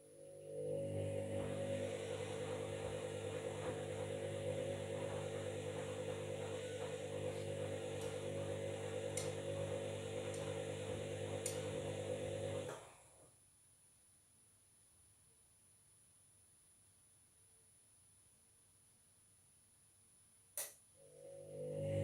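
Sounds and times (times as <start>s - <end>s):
washing machine motor hum: 0.0s - 13.1s, 21.0s - 22.0s.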